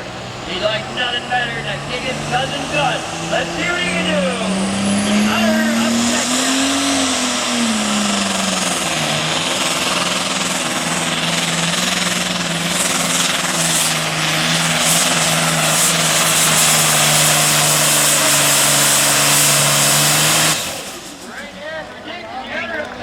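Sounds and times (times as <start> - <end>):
diesel engine running under load: 0.0 - 23.0.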